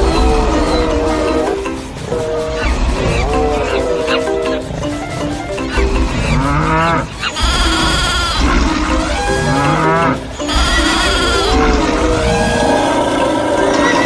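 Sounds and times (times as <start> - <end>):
animal calls: 0.0 - 14.0
cattle mooing: 2.2 - 4.6, 6.3 - 14.0.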